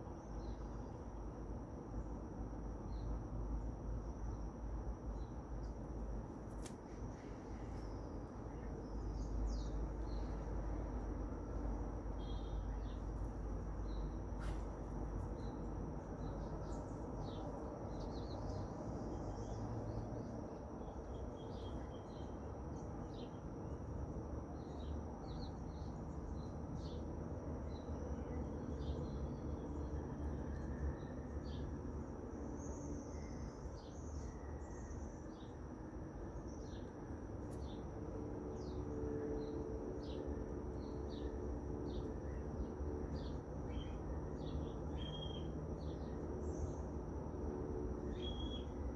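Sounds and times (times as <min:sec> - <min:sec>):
small birds chirping: 0:05.1 - 0:10.9, 0:11.5 - 0:23.8, 0:43.2 - 0:46.9, 0:48.1 - 0:48.8.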